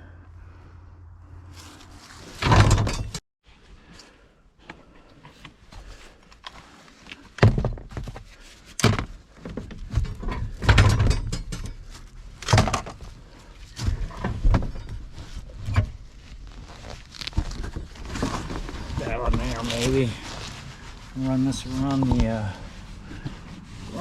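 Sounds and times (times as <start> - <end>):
clattering handling noise: 2.3 - 3.2, 7.2 - 20.8.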